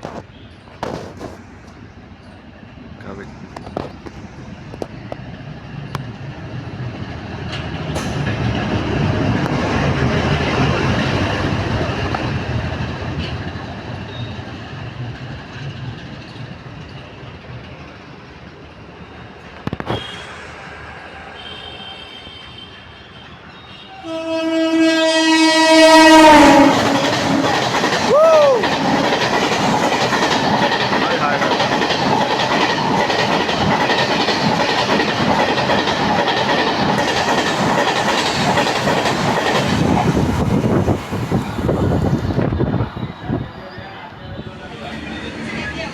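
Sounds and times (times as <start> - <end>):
train wheels rumbling past: 0.0 - 45.9
loud train horn: 19.8 - 20.4, 21.3 - 28.8.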